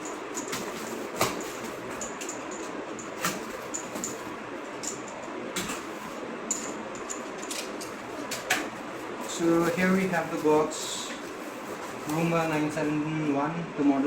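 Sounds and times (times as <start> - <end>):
packaging rustling and scraping: 7.2 - 13.0.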